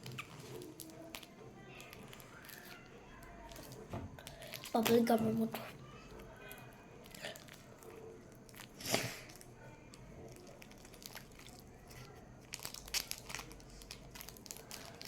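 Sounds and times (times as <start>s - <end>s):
plastic crinkling and rustling: 0.0s - 15.0s.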